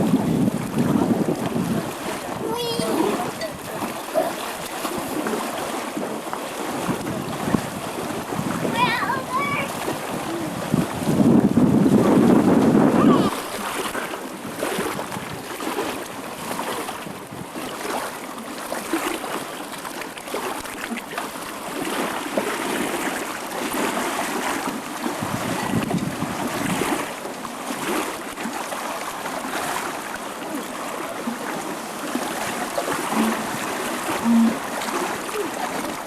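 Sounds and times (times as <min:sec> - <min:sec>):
wind noise: 0:00.0 - 0:03.9, 0:06.8 - 0:15.5, 0:25.2 - 0:27.0
water splashing and rushing: 0:00.0 - 0:36.0.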